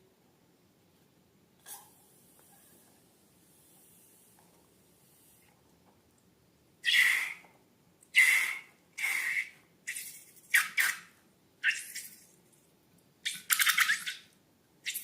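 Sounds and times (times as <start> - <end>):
squeaky hissy slime squeezing: 6.8 - 7.5, 8.1 - 12.3, 13.2 - 15.0.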